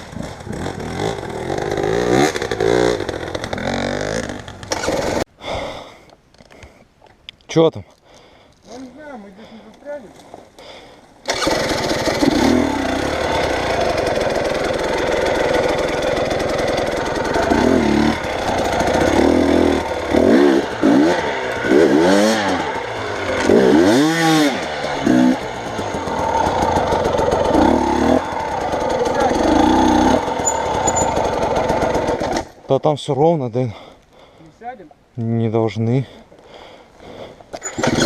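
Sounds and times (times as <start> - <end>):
vehicle engine revving: 11.3 - 32.5.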